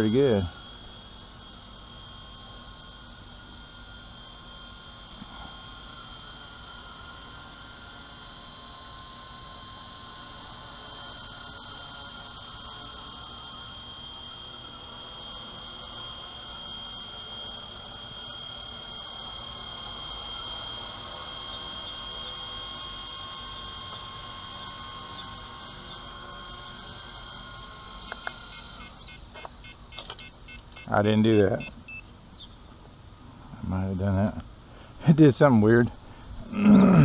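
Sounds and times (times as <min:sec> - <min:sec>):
rc helicopter motor whine: 0:00.0 - 0:37.0
sharp clicks: 0:28.1 - 0:28.4.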